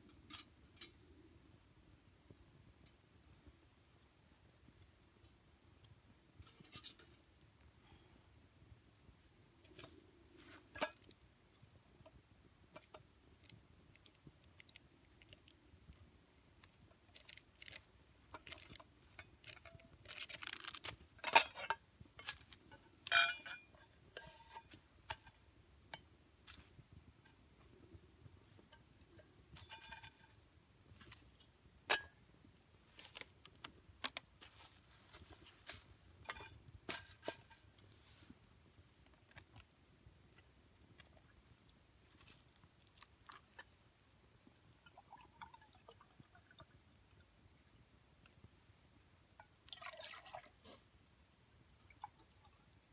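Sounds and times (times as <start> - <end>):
objects being handled: 6.3 - 7.6, 16.6 - 43.8
light metallic clink: 23.1 - 25.3
rustling scrapes: 23.9 - 24.8, 34.4 - 38.5.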